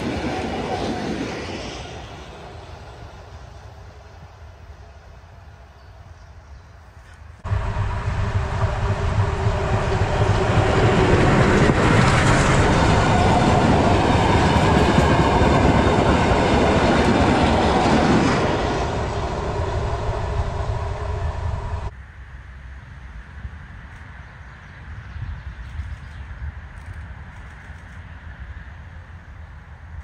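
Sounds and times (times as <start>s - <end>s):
train passing at speed: 0.0s - 6.1s, 7.4s - 22.0s.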